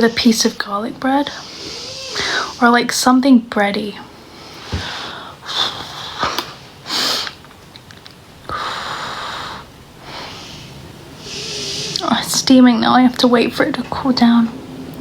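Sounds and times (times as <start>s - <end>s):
person sniffing: 1.2s - 2.8s, 4.5s - 7.4s, 8.5s - 12.1s
person breathing out: 1.3s - 2.7s, 8.5s - 12.0s.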